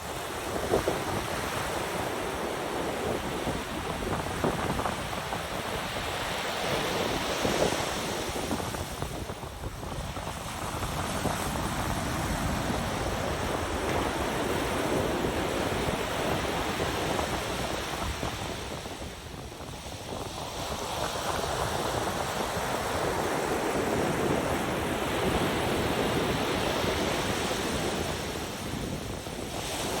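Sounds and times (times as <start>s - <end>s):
ocean surf breaking: 10.2s - 19.3s.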